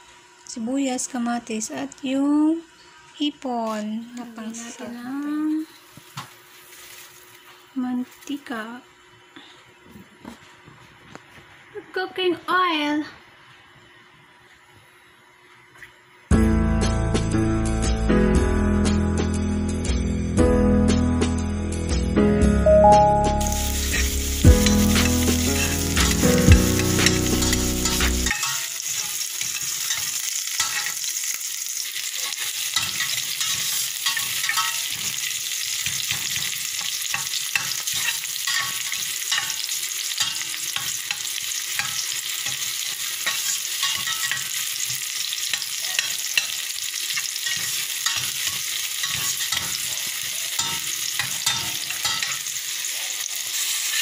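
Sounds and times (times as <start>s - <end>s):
garlic and onion sizzling in oil: 0.0s - 9.1s, 23.2s - 54.0s
background music: 16.3s - 28.3s.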